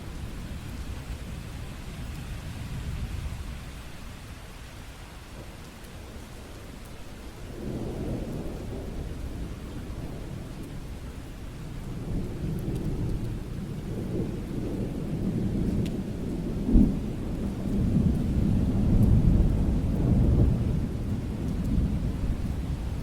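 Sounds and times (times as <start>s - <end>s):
steady rain: 0.0s - 23.0s
thunder rumbling and cracking: 7.5s - 23.0s.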